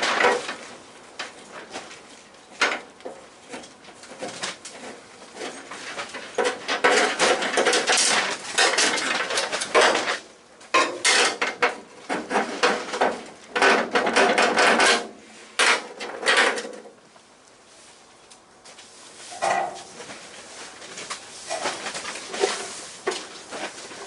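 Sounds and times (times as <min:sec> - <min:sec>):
metal clattering and knocking: 0:02.6 - 0:16.9.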